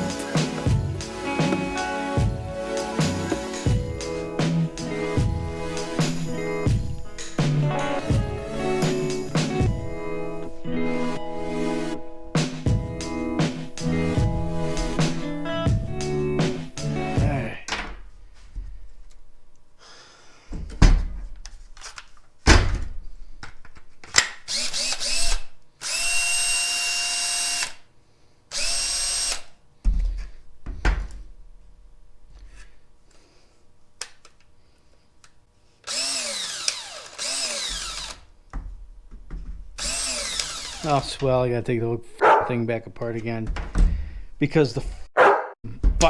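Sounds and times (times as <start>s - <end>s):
cordless drill motor running: 24.5s - 27.8s, 28.5s - 29.6s, 35.8s - 38.3s, 39.8s - 41.2s
drill handling clicks and knocks: 35.8s - 38.6s.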